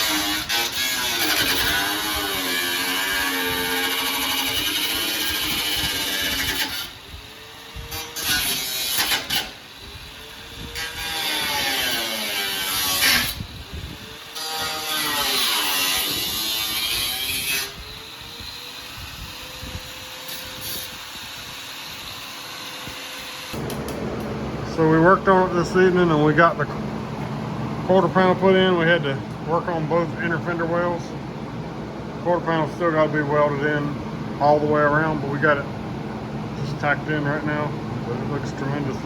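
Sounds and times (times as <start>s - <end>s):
power tool on sheet metal: 0.0s - 24.0s.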